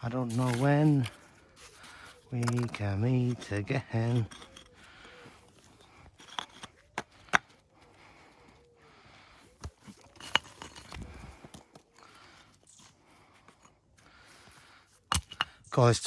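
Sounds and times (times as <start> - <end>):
stone knocking against stone: 1.9 - 4.8, 6.1 - 7.5, 15.1 - 15.6.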